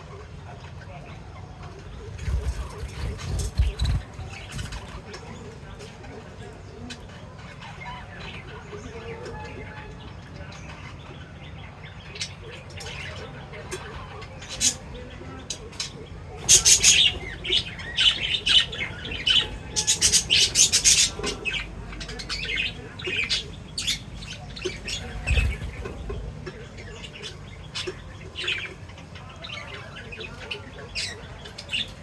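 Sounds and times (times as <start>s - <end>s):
parrots chirping and squawking: 1.8s - 5.5s, 11.2s - 32.0s.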